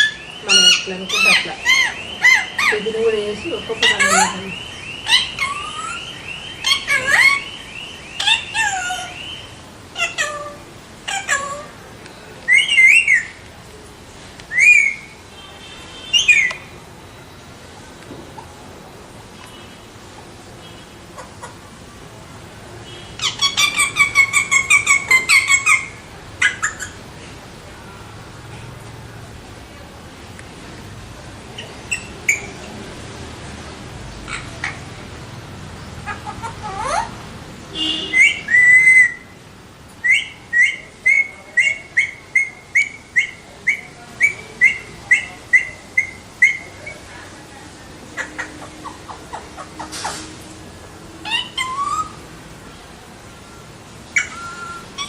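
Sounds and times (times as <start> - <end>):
parrot squawking: 0.0 - 11.8, 12.5 - 13.4, 14.5 - 15.2, 16.1 - 16.7, 21.2 - 21.7, 23.2 - 27.0, 31.6 - 32.6, 34.2 - 35.0, 36.0 - 37.2, 37.8 - 39.4, 40.0 - 47.0, 48.1 - 50.2, 51.2 - 52.2, 54.1 - 55.0.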